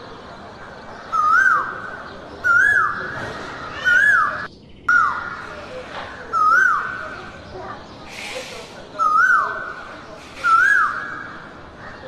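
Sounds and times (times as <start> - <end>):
bird whistled call: 8.2 - 9.6, 10.4 - 11.3.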